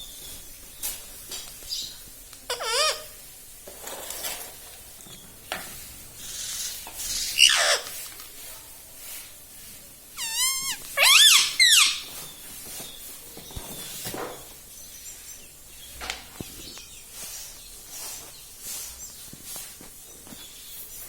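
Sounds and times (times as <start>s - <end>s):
parakeet chirps and shrill calls: 1.7s - 3.2s, 6.2s - 8.1s, 10.2s - 12.3s.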